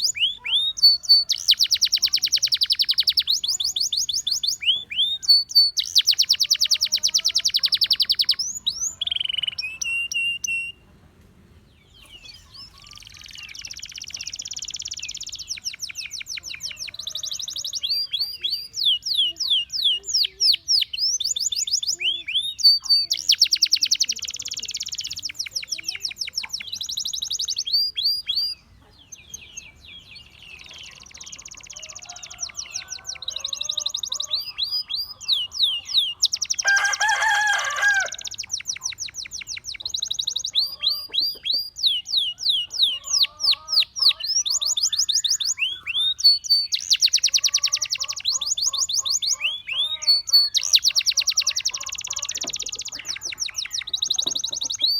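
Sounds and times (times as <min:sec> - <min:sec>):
lower-pitched bird call: 0:00.0 - 0:10.8, 0:30.2 - 0:54.9
canary singing trills: 0:00.0 - 0:10.9, 0:11.8 - 0:54.9.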